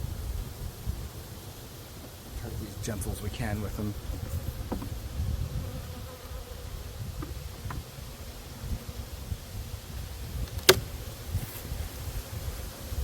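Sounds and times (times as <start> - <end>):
honeybees buzzing: 0.1 - 13.0
sharp click: 10.4 - 10.9.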